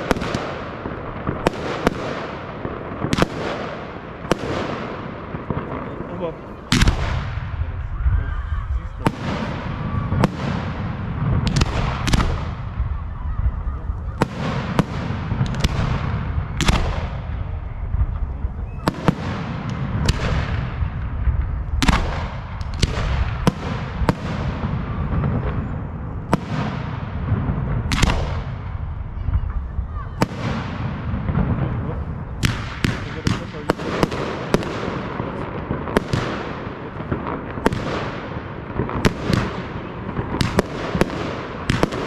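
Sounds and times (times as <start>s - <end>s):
low rumble: 19.9s - 26.3s.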